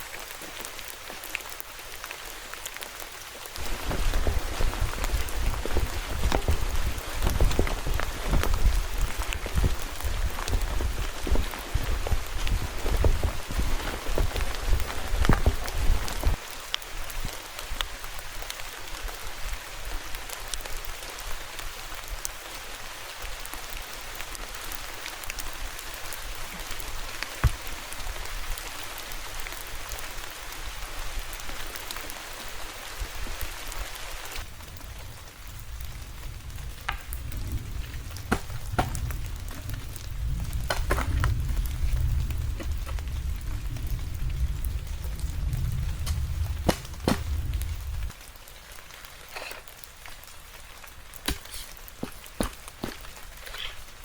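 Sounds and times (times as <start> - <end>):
rain falling: 0.0 - 54.0
sharp raindrop ticks: 34.2 - 53.8
low rumble: 34.5 - 48.2.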